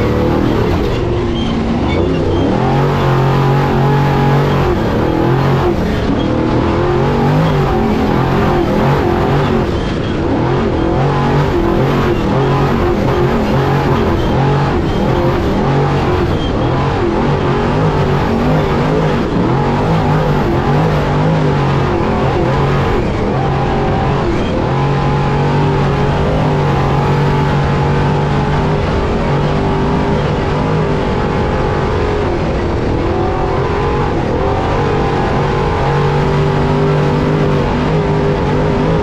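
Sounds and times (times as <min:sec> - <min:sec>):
race truck engine revving: 0:00.0 - 0:39.0.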